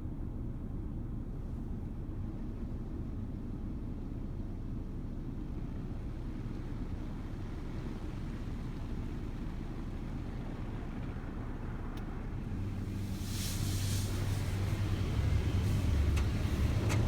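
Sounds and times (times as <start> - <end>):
car wash low rumble: 1.1 - 17.0
hissing water spray: 12.9 - 16.1.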